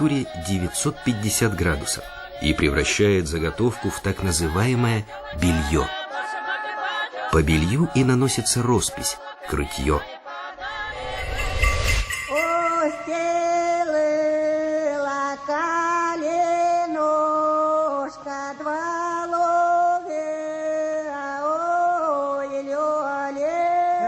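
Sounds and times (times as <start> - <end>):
woman singing: 12.4 - 24.0.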